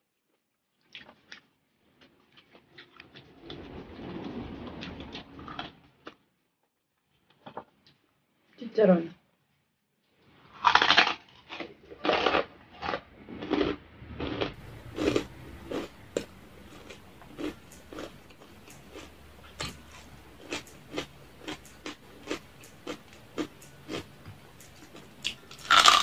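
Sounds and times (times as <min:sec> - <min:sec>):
crackly chewing: 0:00.2 - 0:06.2, 0:10.3 - 0:26.0
crunching bites into fried pork rind: 0:10.5 - 0:26.0.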